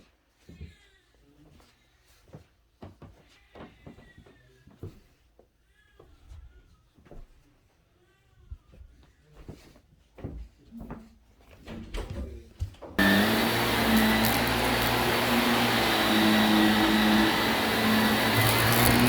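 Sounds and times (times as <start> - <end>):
vacuum cleaner running: 13.0 - 19.0.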